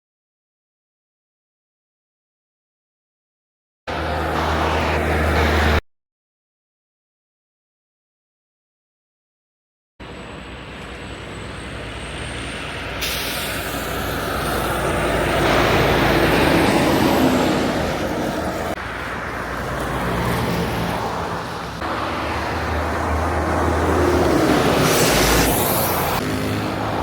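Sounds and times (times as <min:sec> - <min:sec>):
heavy trucks driving by: 0:03.9 - 0:05.8, 0:10.0 - 0:27.0.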